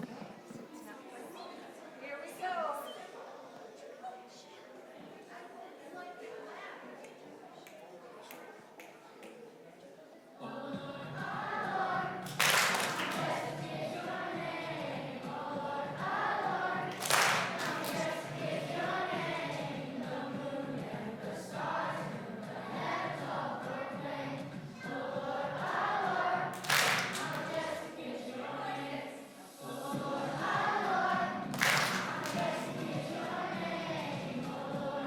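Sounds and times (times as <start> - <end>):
children singing: 10.4 - 35.0.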